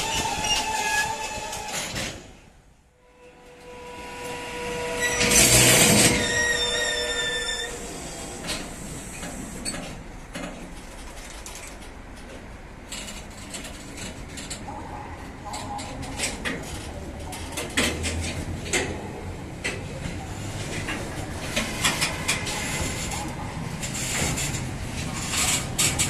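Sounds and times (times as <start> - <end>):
metallic wheel squeal: 0.0 - 2.0, 3.1 - 8.4
freight train rolling: 0.0 - 26.0.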